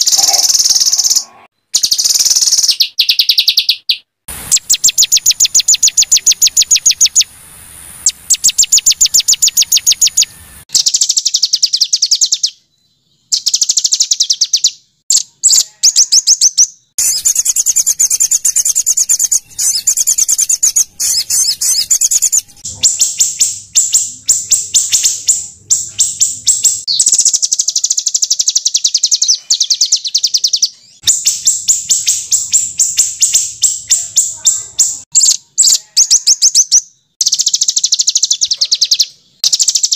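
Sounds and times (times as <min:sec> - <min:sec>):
songbird rapid chattering song: 0:00.0 - 0:07.4, 0:08.0 - 0:12.6, 0:13.2 - 0:39.9.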